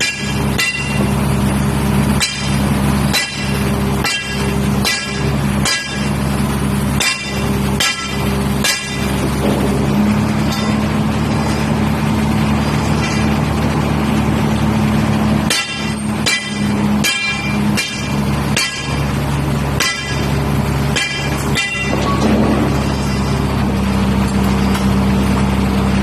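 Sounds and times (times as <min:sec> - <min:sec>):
truck engine running: 0:00.0 - 0:26.0.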